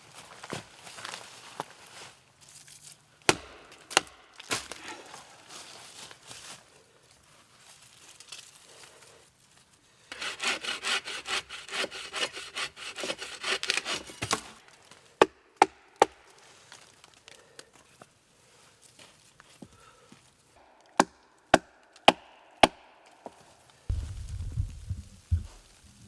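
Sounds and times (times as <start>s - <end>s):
hand saw sawing wood: 10.1s - 14.5s.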